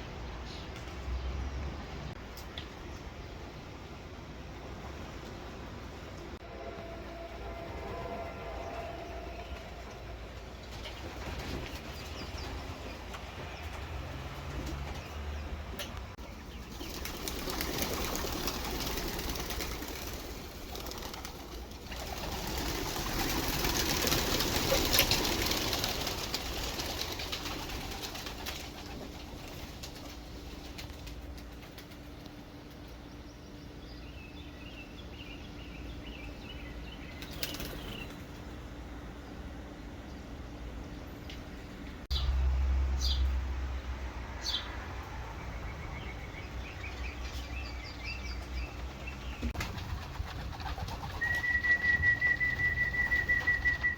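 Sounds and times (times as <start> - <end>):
pigeon wings flapping: 16.6 - 32.8, 37.2 - 38.4, 48.5 - 53.9.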